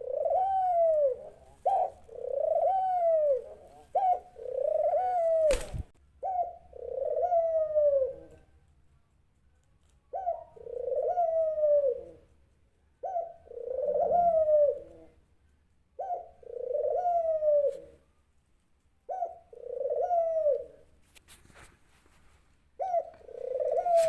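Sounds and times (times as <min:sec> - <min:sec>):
dove cooing: 0:00.0 - 0:08.6, 0:10.1 - 0:12.3, 0:13.0 - 0:15.2, 0:15.9 - 0:18.1, 0:19.0 - 0:21.0, 0:22.8 - 0:24.0.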